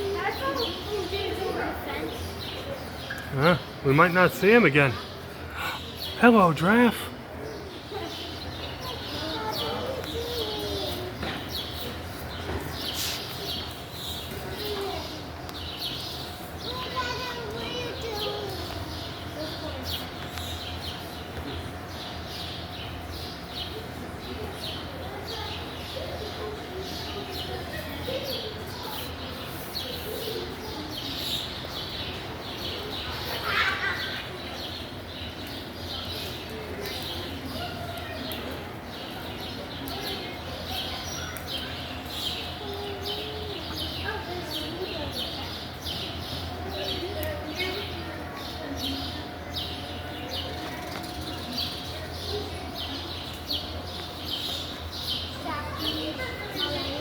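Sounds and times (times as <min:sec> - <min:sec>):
faint murmur of voices: 0:00.0 - 0:57.0
small birds chirping: 0:00.0 - 0:57.0.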